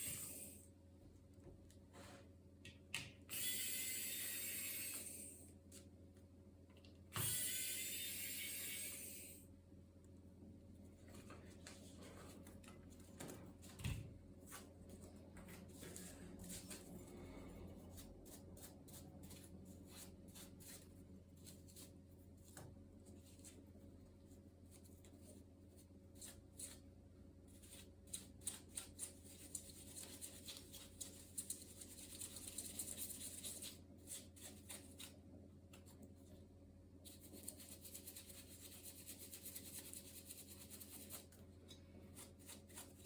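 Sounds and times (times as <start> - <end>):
steady low hum: 8.1 - 39.6.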